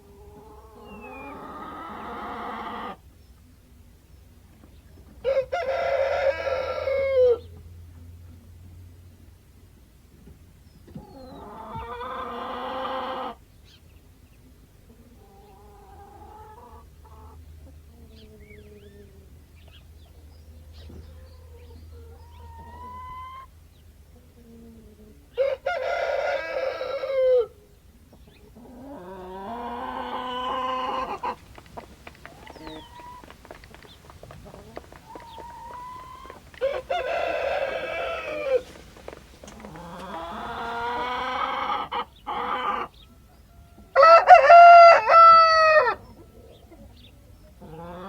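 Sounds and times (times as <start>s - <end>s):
chicken calls: 0.1s - 3.0s, 11.1s - 13.4s, 20.8s - 23.6s, 25.4s - 27.5s, 28.6s - 46.9s
rooster crowing: 5.3s - 7.4s, 25.4s - 27.5s, 29.8s - 41.8s, 43.9s - 46.0s.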